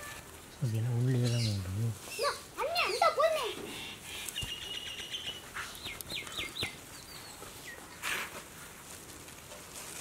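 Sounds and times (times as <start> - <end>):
bird chirps: 1.1 - 8.0
short rustle: 7.4 - 10.0.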